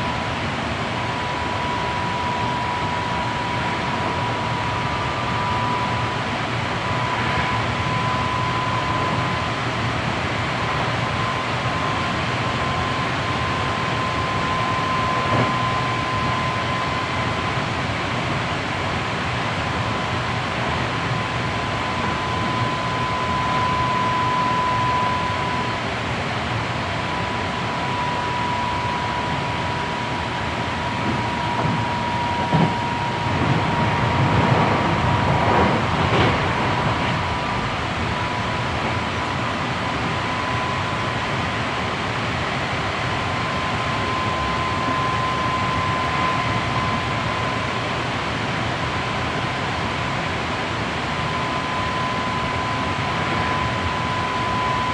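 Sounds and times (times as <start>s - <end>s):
train wheel rumble: 0.0s - 54.9s
thin high tone: 1.0s - 17.6s, 21.4s - 35.3s, 36.8s - 48.1s
train wheels rumbling on rails: 29.1s - 40.1s.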